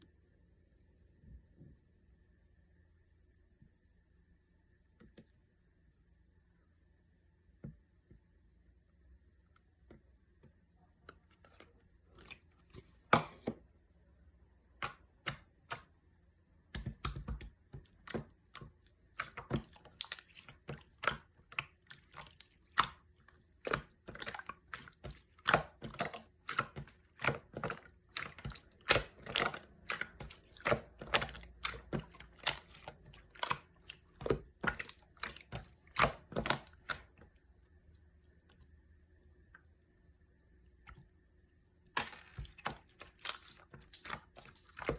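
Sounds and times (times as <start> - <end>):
slime squished by hand: 16.8 - 37.4, 42.2 - 44.9.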